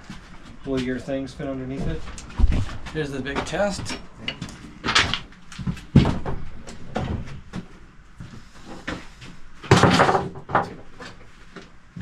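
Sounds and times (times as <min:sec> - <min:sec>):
objects knocking on wooden shelf: 0:09.7 - 0:10.9.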